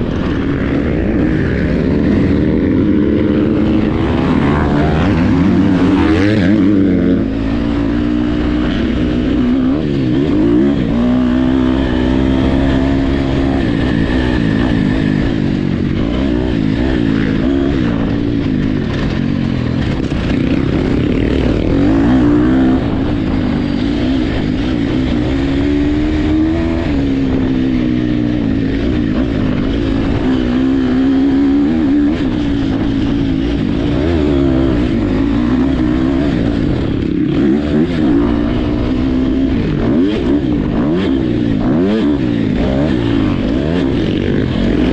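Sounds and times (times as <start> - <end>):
dirt bike engines racing: 0.0 - 44.9.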